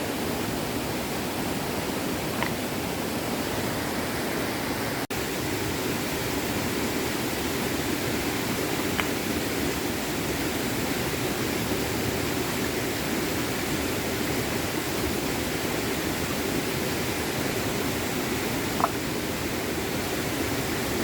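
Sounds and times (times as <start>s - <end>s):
stream flowing over stones: 5.2s - 21.0s.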